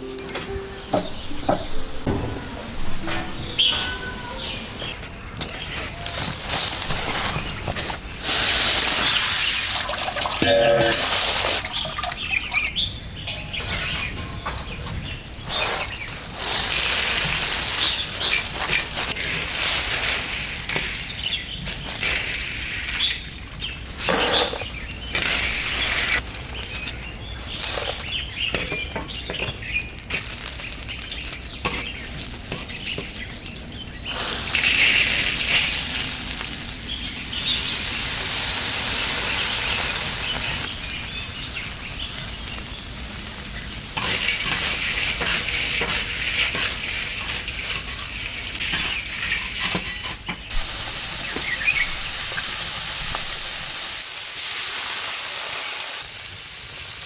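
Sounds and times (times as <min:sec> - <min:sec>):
food sizzling in hot oil: 0:08.2 - 0:12.7, 0:15.2 - 0:23.1, 0:30.0 - 0:57.0.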